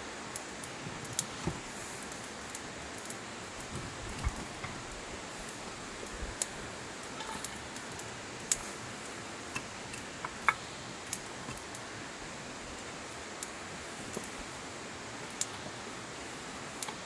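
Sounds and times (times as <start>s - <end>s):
campfire hiss: 0.0s - 17.0s
campfire pops: 0.3s - 11.9s.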